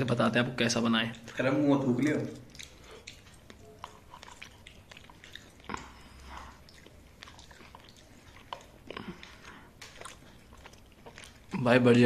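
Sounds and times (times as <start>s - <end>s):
person chewing: 1.1s - 11.8s
mouth clicks and smacks: 2.2s - 11.6s.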